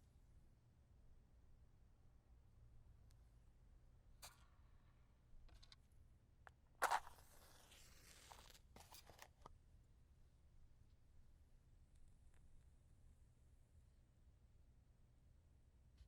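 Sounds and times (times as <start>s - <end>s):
match striking and hissing: 6.8s - 9.2s.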